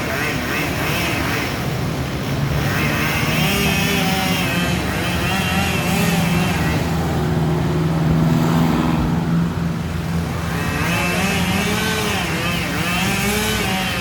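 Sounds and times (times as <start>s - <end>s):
chainsaw cutting wood: 2.4s - 7.0s, 10.4s - 14.0s.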